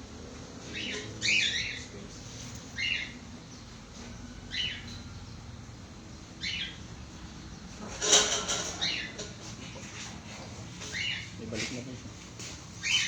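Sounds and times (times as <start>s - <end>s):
bird chirping: 0.7s - 2.0s, 2.7s - 7.8s, 10.8s - 11.3s, 12.8s - 13.0s.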